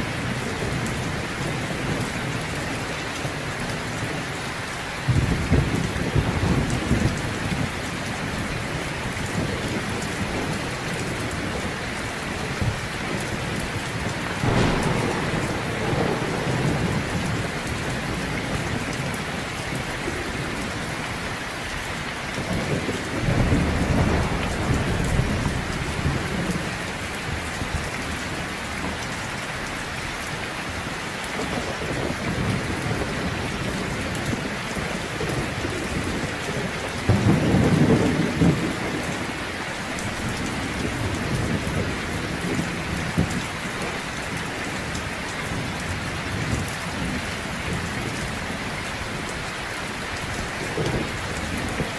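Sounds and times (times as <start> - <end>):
heavy rain: 0.0 - 51.9
thunder rumbling: 5.0 - 21.3, 22.4 - 29.0, 31.4 - 49.6.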